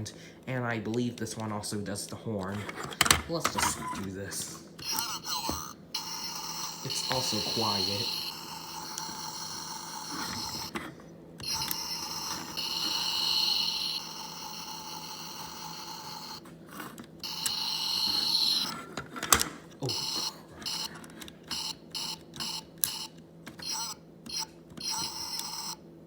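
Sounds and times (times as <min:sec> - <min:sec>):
electronic toy engine sound: 0:04.8 - 0:10.8, 0:11.4 - 0:16.4, 0:17.2 - 0:18.8, 0:19.8 - 0:20.9, 0:21.5 - 0:25.8.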